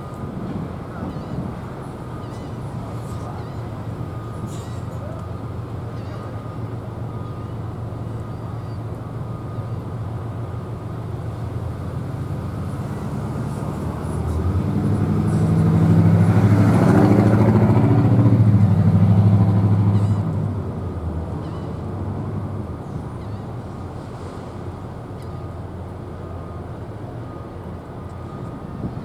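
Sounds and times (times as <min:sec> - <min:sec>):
vehicle engine passing by: 0:12.6 - 0:20.2.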